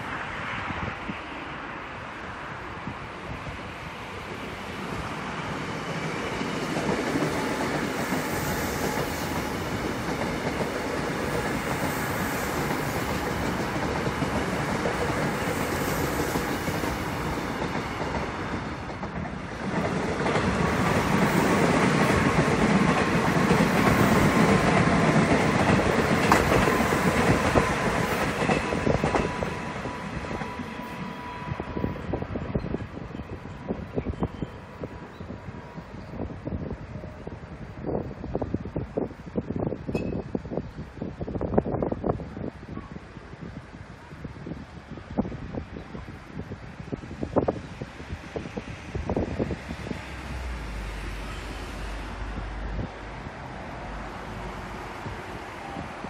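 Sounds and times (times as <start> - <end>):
train whine: 0.0 - 42.2, 43.6 - 56.0
train wheels clattering over rails: 5.5 - 30.8.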